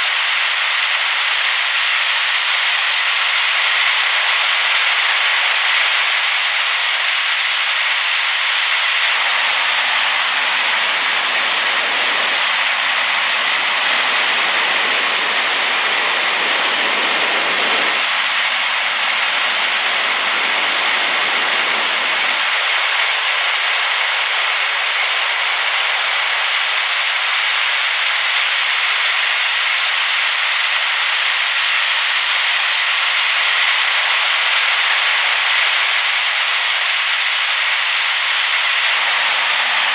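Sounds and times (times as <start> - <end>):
waterfall rushing: 8.9 - 27.2, 38.8 - 39.9.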